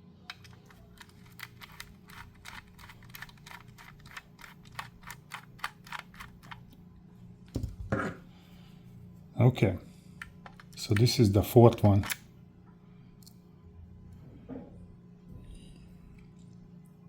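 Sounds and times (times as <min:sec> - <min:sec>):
screwdriver clicking: 0:00.3 - 0:06.6.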